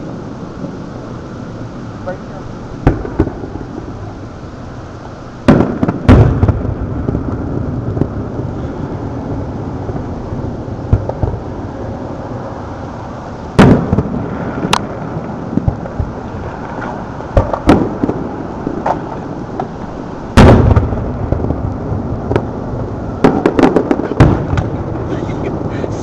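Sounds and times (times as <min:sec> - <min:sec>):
fireworks bursting with loud bangs: 0:00.0 - 0:26.0
low rumble: 0:06.0 - 0:26.0.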